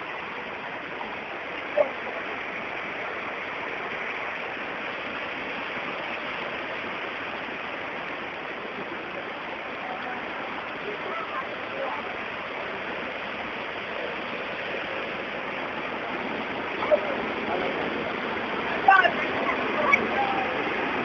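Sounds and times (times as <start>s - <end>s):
rushing floodwater: 0.0s - 21.0s.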